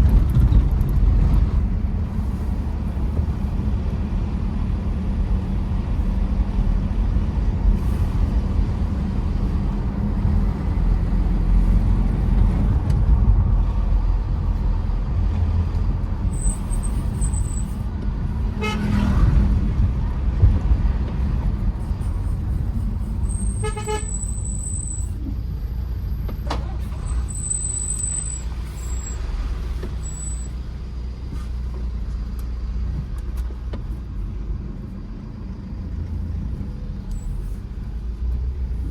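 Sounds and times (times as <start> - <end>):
diesel engine droning while driving: 0.0 - 38.9
vehicle horn: 18.6 - 19.3, 23.4 - 24.8.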